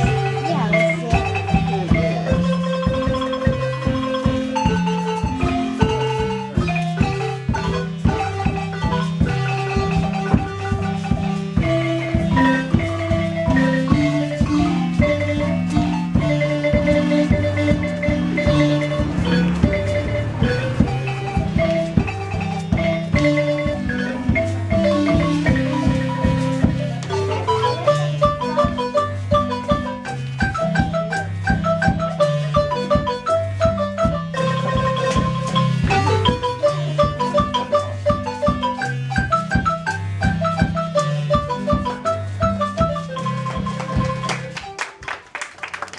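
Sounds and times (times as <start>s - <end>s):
marimba music: 0.0s - 45.3s.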